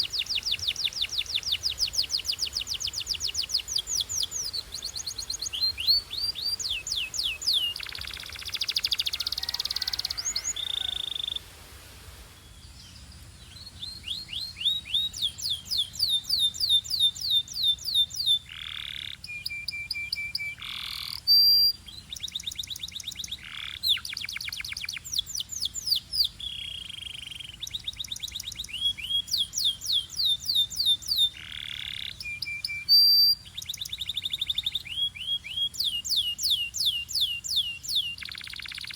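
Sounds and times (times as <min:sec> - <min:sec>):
canary singing: 0:00.0 - 0:11.4, 0:13.5 - 0:38.9.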